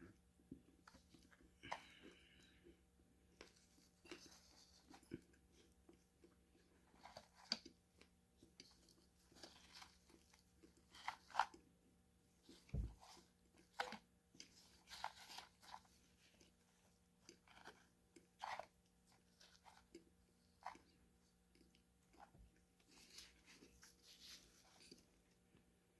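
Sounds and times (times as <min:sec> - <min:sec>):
crunchy food being chewed: 0:12.4 - 0:25.1.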